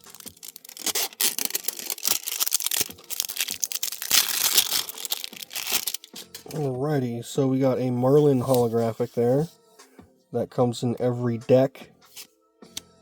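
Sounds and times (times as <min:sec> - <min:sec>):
foil wrapper crinkling and tearing: 0:00.0 - 0:06.3.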